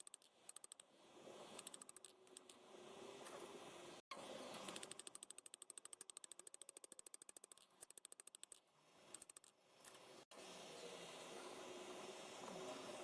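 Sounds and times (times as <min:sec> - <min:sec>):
rapid mechanical clicking: 0:00.0 - 0:00.9, 0:01.5 - 0:02.6, 0:04.6 - 0:10.0.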